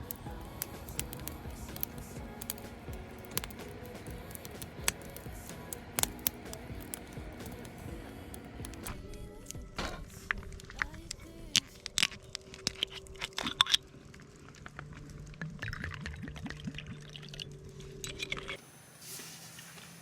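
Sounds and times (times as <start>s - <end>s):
steady low hum: 0.0s - 12.5s
liquid sounds: 0.0s - 18.6s.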